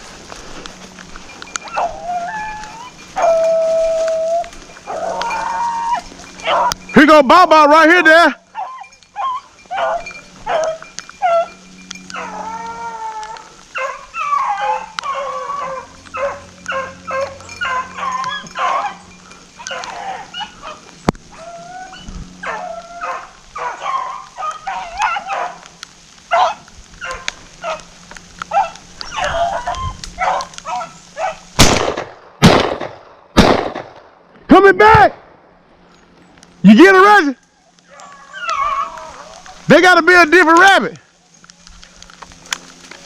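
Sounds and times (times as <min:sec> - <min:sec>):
dogs baying and howling: 0:00.0 - 0:07.2, 0:08.1 - 0:31.6, 0:36.9 - 0:39.7
loud gunshot: 0:31.6 - 0:34.0.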